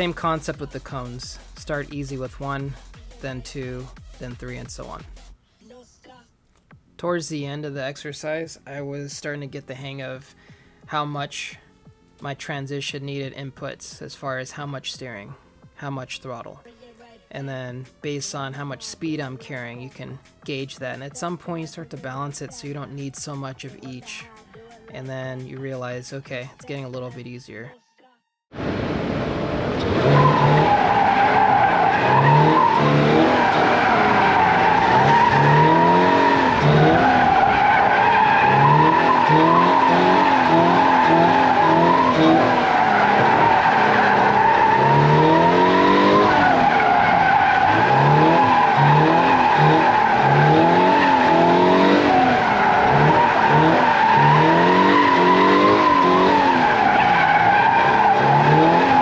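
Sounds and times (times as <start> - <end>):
car engine revving: 28.5 - 59.0
tyres squealing: 29.8 - 59.0.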